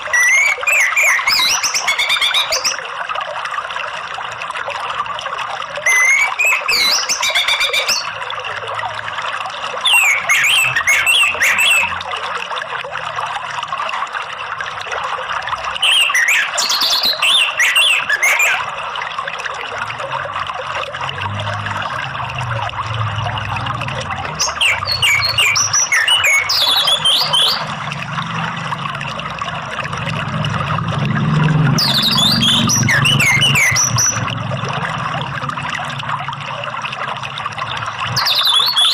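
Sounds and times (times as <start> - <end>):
flowing water: 0.0 - 38.9
bird singing high whistles: 0.1 - 2.8, 5.8 - 8.1, 9.8 - 12.0, 15.8 - 18.6, 24.4 - 27.6, 31.8 - 34.2, 38.2 - 38.9.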